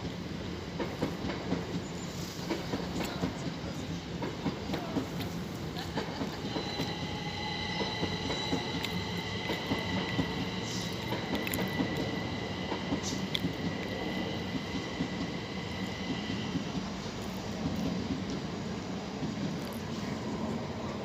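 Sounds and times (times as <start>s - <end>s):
train rumbling on rails: 0.0s - 21.0s
high-pitched whine: 6.4s - 17.7s.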